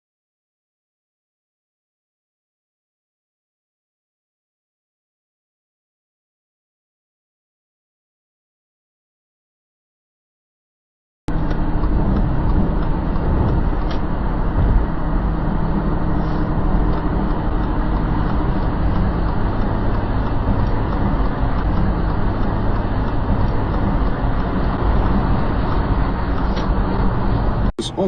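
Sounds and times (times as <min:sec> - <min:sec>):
vehicle road noise: 0:11.3 - 0:28.0.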